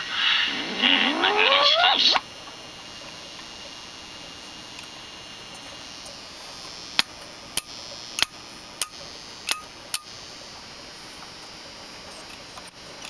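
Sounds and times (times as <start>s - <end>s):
radio hissing: 0.0s - 2.2s.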